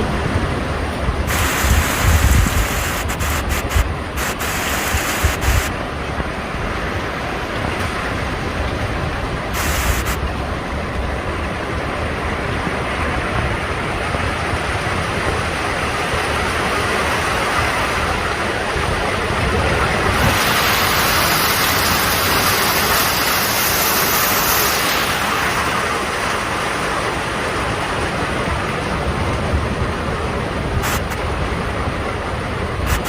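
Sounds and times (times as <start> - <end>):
heavy rain hissing: 1.0 - 10.8, 15.5 - 28.0, 30.6 - 31.8, 32.6 - 33.0.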